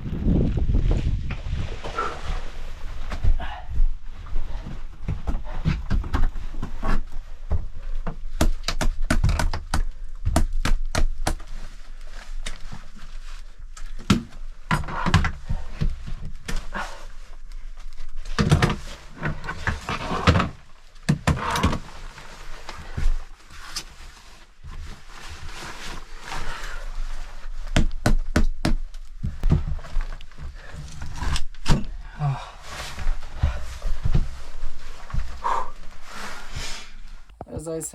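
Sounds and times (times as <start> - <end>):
low wind rumble: 0.0 - 4.0
knocks and thuds of handling gear: 27.7 - 30.6.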